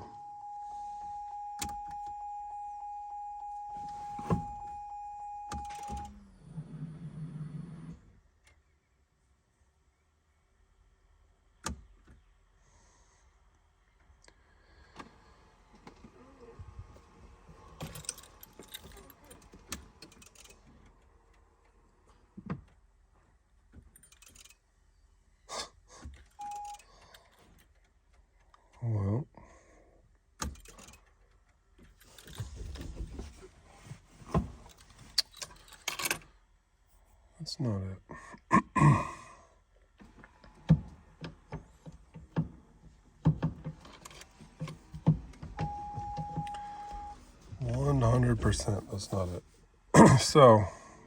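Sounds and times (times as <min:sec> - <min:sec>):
steady electronic beep: 0:00.0 - 0:06.1
knocks and clicks of handling: 0:40.0 - 0:47.1.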